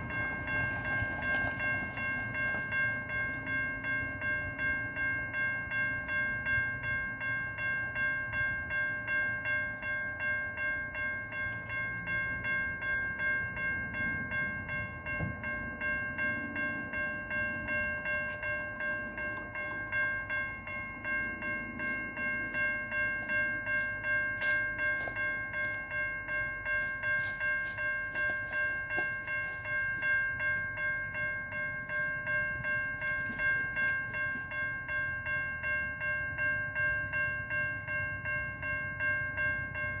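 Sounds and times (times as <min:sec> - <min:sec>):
train rumble: 0:00.0 - 0:40.0.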